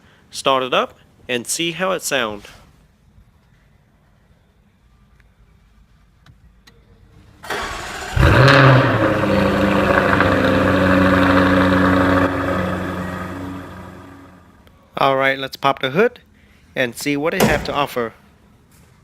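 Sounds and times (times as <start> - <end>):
car starter spinning: 7.5 - 14.4
car engine revving and idling: 7.8 - 14.5.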